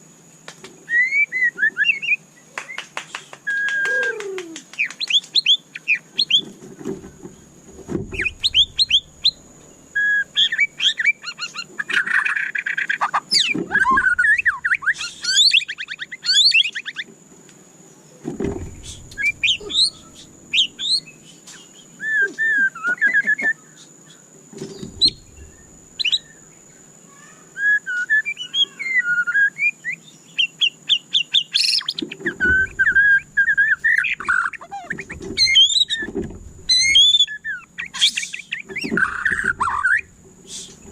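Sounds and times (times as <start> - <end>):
bird singing whistles and trills: 0.8 - 6.5, 8.1 - 17.1, 18.1 - 26.8, 27.5 - 40.9
dull low thumps: 7.0 - 9.6, 18.4 - 21.0, 24.8 - 26.0, 35.1 - 37.0
faint high whine: 17.8 - 30.0.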